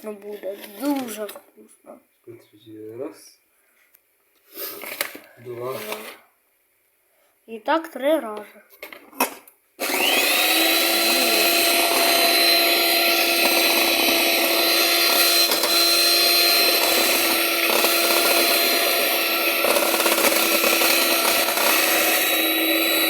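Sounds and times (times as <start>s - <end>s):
electric mixer whirring: 9.8s - 23.0s.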